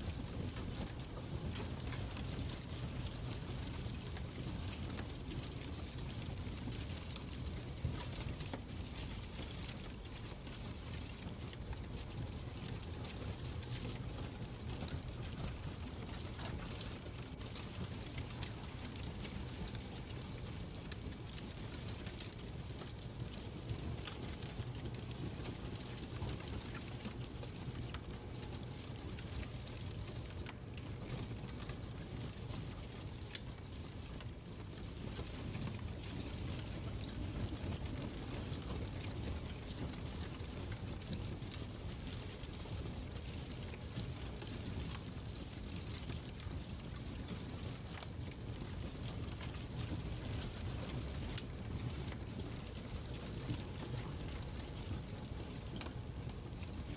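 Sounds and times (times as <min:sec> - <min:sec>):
fire crackling and popping: 0:00.0 - 0:56.9.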